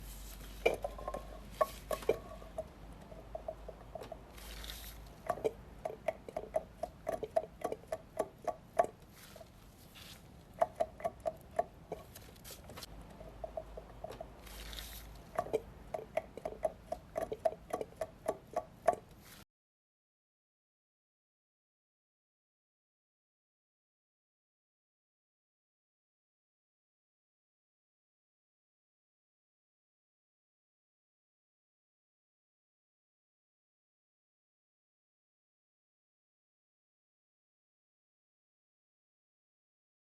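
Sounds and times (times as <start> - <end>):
rhythmic engine knocking tick: 5.1 - 9.0, 10.6 - 12.2, 15.1 - 19.1.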